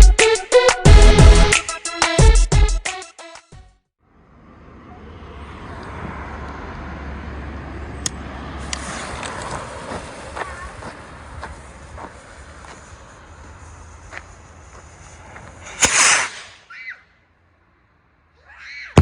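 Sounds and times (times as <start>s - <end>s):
electronic music: 0.0s - 3.2s.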